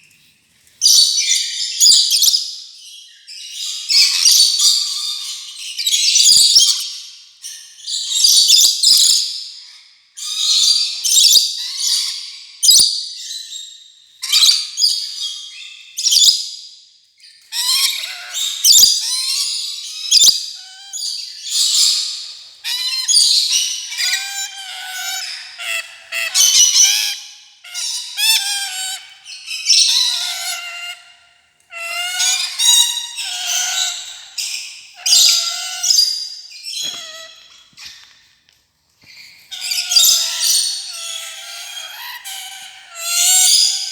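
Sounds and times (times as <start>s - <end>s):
lorikeet chattering and screeching: 17.5s - 38.0s, 39.4s - 43.9s.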